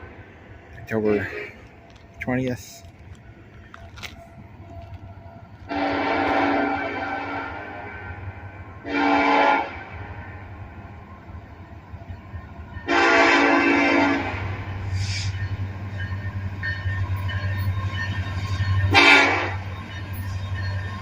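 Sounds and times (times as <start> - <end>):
locomotive air horn blasts: 5.7 - 10.2, 12.9 - 15.3, 18.9 - 19.6.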